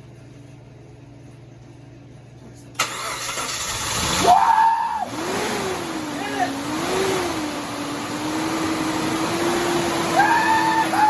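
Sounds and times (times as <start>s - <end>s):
engine starting and revving: 2.8s - 4.4s, 5.1s - 10.2s.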